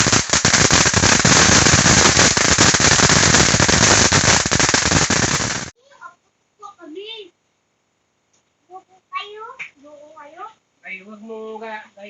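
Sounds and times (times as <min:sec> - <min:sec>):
crackling fountain firework: 0:00.0 - 0:05.8.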